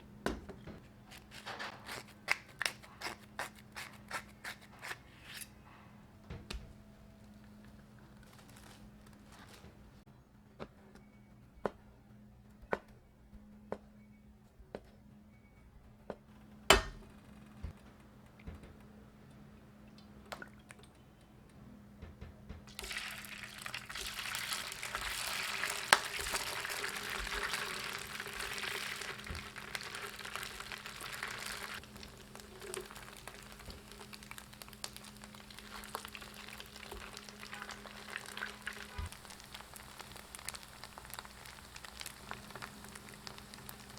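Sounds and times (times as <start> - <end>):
faint hiss: 22.8 - 43.9
liquid pouring hiss: 22.8 - 43.9.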